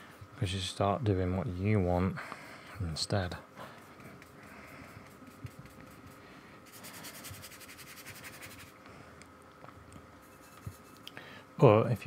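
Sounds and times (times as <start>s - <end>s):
paintbrush scratching on paper: 3.8s - 8.8s, 10.2s - 11.0s.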